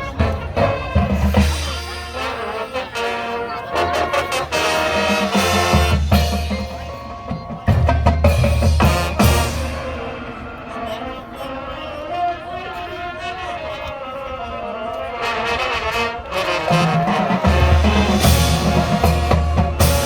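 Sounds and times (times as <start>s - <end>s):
drumline percussion: 0.0s - 10.9s, 15.9s - 20.0s
brass playing: 0.0s - 20.0s.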